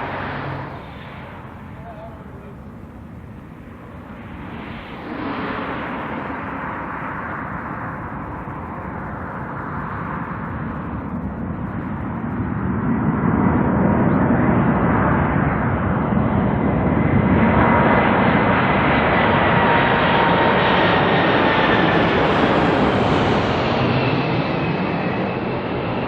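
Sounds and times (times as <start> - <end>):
faint steady whine: 0.0 - 12.9
jet engines rushing: 0.0 - 26.0.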